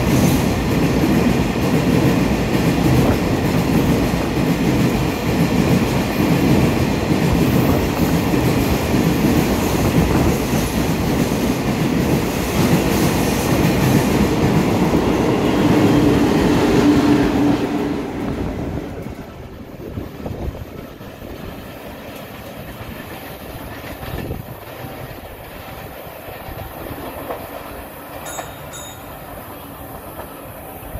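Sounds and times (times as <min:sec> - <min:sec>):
wheels clacking over rail joints: 0:18.9 - 0:29.4.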